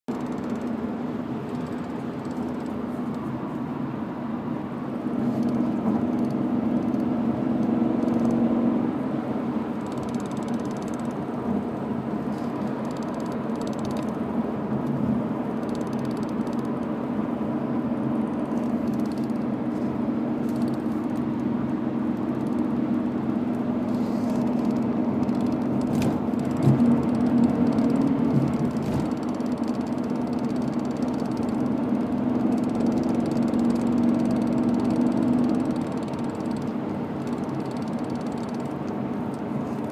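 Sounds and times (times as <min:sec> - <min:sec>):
car engine running: 0:00.1 - 0:39.9
driveline ticking: 0:29.1 - 0:38.9.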